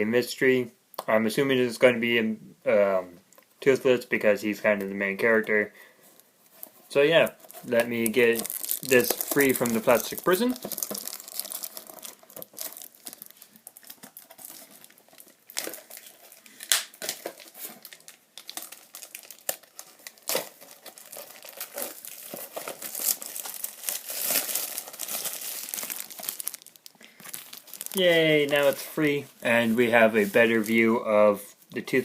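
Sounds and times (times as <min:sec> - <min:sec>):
plastic packaging crinkling: 0:06.5 - 0:31.0.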